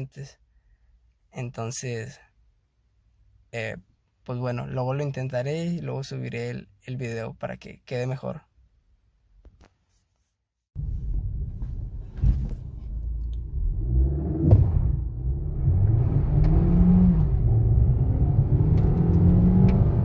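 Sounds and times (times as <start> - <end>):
car engine accelerating: 10.8 - 20.0.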